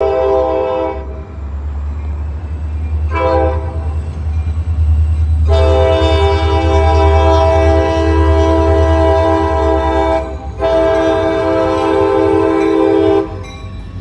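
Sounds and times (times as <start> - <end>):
locomotive air horn blasts: 0.0 - 1.3, 3.1 - 4.0, 5.4 - 13.5
train low rumble: 0.0 - 14.0.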